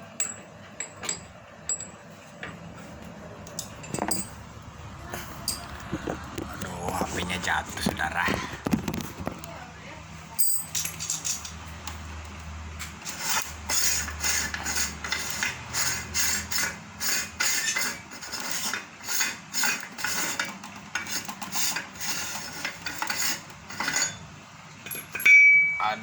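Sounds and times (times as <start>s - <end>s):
metal parts clinking and knocking: 0.2s - 2.0s, 3.5s - 4.5s, 5.4s - 6.2s, 10.4s - 11.6s, 24.8s - 25.7s.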